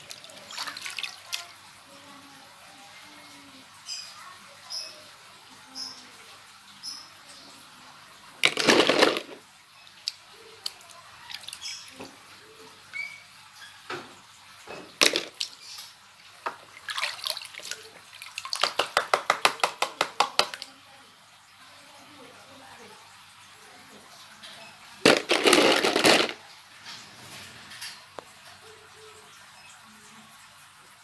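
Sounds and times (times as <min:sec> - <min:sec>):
water splashing in a bucket: 0:00.0 - 0:01.8, 0:08.2 - 0:13.0, 0:14.6 - 0:20.7, 0:24.9 - 0:26.4.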